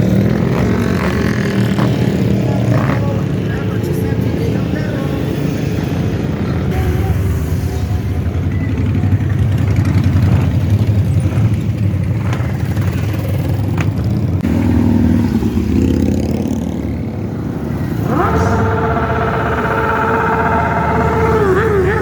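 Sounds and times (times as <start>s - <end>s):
motorcycle engines rumbling: 0.0s - 22.0s
higher engine note rising: 14.4s - 22.0s.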